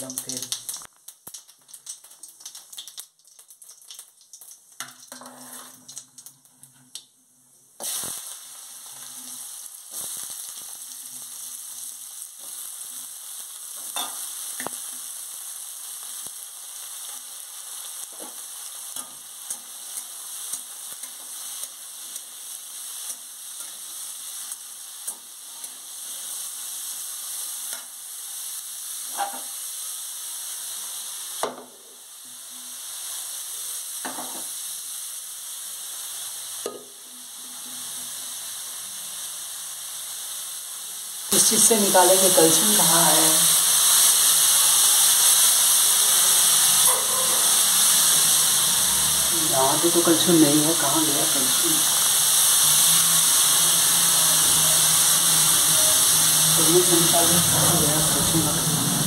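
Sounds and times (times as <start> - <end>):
potatoes sizzling in hot oil: 0.0 - 59.0.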